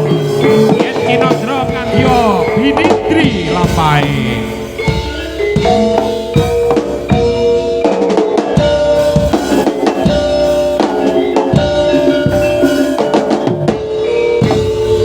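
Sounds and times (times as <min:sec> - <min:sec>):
drums beating: 0:00.0 - 0:15.0
ringing metallophone tones: 0:00.0 - 0:15.0.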